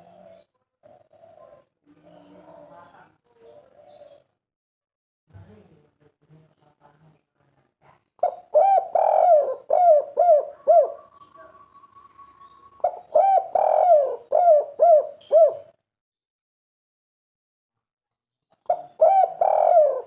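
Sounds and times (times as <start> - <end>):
dove cooing: 0.0 - 4.3, 8.2 - 15.8, 18.6 - 20.0.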